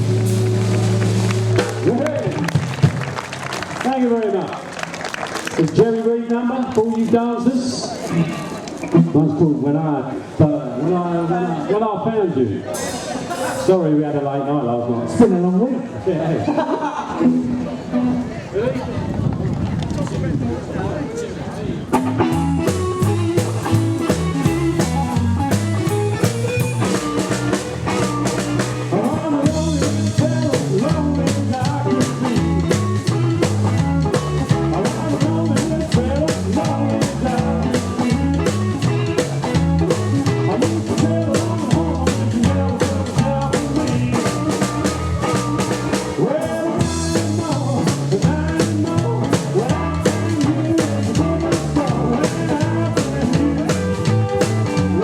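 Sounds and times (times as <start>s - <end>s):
drum kit beat: 0.0s - 3.2s, 12.8s - 13.7s, 22.0s - 55.0s
slapped double bass: 0.0s - 3.2s, 21.9s - 55.0s
electric lead guitar: 0.0s - 3.8s, 16.8s - 19.9s, 21.9s - 55.0s.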